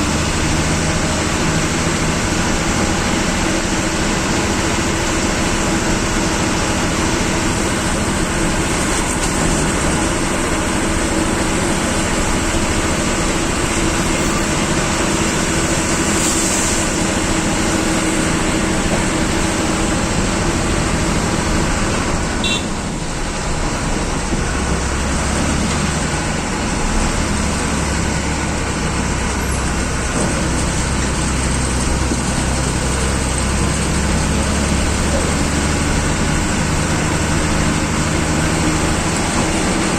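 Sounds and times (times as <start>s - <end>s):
bus diesel engine running: 0.0s - 39.9s
road noise: 0.0s - 39.9s
short hiss: 13.8s - 17.6s.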